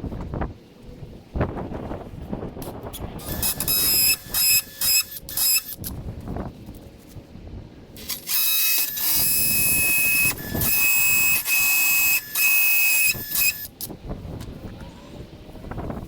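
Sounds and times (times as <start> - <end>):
power tool whining: 3.2 - 5.9, 8.0 - 13.9.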